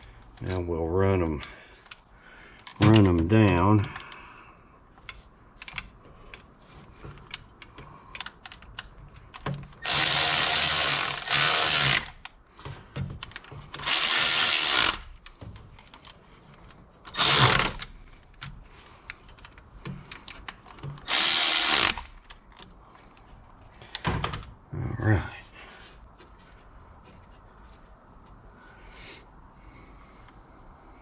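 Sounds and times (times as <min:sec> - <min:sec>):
metallic tool clicks: 0:07.2 - 0:09.5
power driver spinning bolts: 0:13.2 - 0:16.1, 0:17.0 - 0:22.8.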